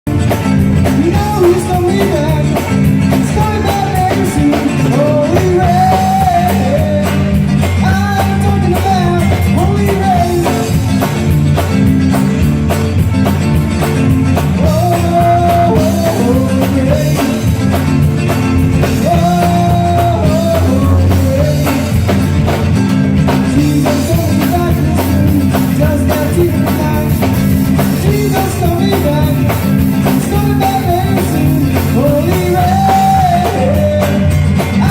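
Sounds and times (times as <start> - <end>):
band accompaniment: 0.0 - 34.9
person singing: 0.8 - 10.8, 14.6 - 17.7, 18.8 - 22.2, 23.6 - 34.9.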